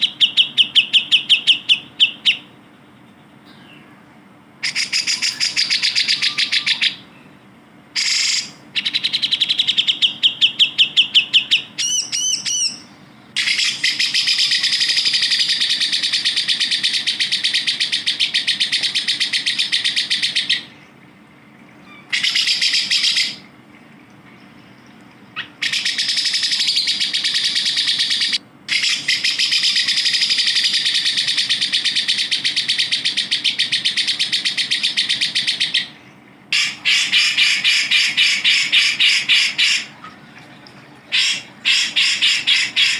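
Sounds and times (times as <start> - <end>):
bird trilling rapidly: 4.6 - 7.1, 8.0 - 20.8, 21.8 - 23.5, 25.4 - 36.0, 36.6 - 40.0, 41.1 - 42.9.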